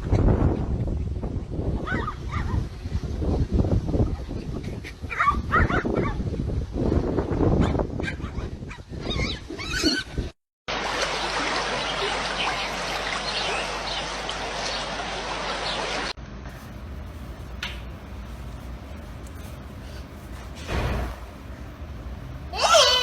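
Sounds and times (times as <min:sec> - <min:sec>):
knocking and rustling: 0:16.5 - 0:22.2
steady hiss: 0:16.5 - 0:22.6
animal calls gliding in pitch: 0:22.5 - 0:23.0.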